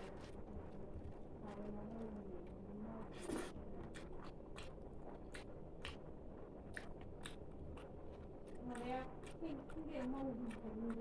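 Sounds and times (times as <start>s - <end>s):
person chewing crunchy food: 3.9s - 6.0s, 6.7s - 9.8s.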